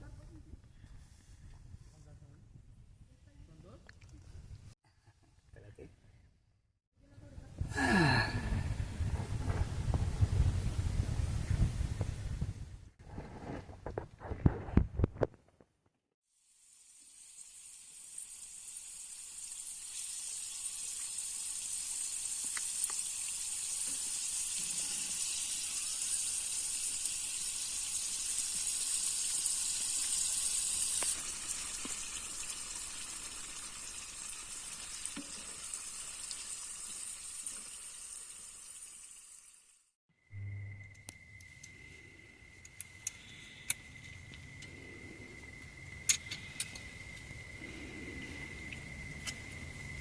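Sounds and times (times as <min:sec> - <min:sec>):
sizzling hiss: 0:16.3 - 0:40.0.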